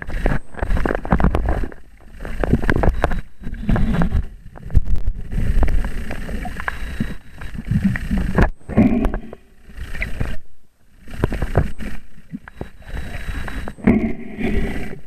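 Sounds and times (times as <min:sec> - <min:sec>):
underwater splashing and bubbling: 0:00.0 - 0:15.0
small clicks: 0:04.5 - 0:07.5.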